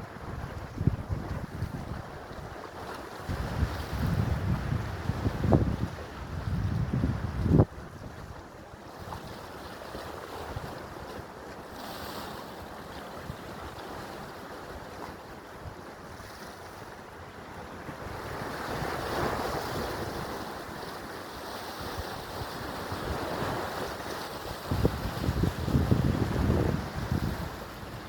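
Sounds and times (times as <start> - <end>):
wind buffeting microphone: 0.0 - 2.5, 3.2 - 8.4, 21.8 - 28.0
sea waves washing in: 11.6 - 28.0.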